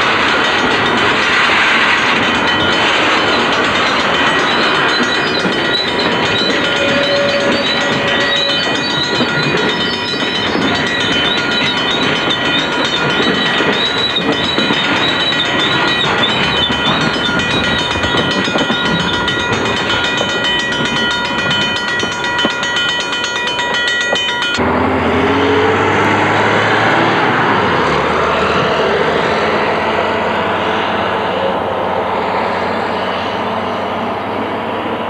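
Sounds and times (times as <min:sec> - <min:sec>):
freight cars rolling past: 0:00.0 - 0:35.0
high-pitched wheel squeal: 0:02.5 - 0:20.2.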